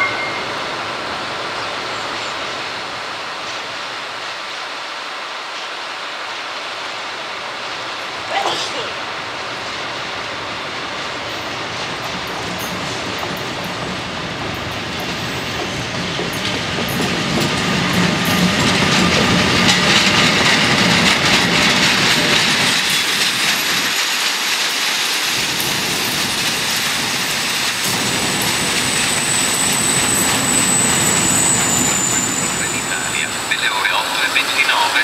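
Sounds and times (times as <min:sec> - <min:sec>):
train wheels clattering over rail joints: 0:10.8 - 0:32.7
high wheel squeal: 0:26.1 - 0:35.0.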